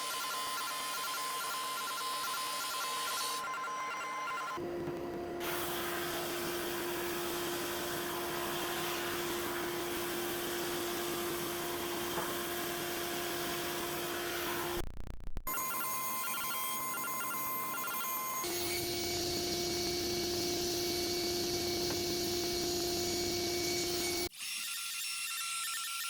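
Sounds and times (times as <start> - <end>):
electric power tool running: 4.6 - 14.8, 18.4 - 24.6.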